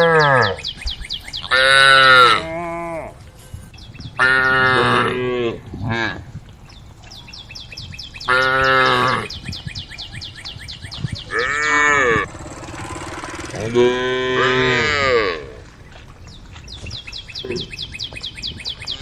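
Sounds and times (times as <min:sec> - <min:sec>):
cattle mooing: 0:00.0 - 0:00.6, 0:04.2 - 0:06.2, 0:11.3 - 0:15.6.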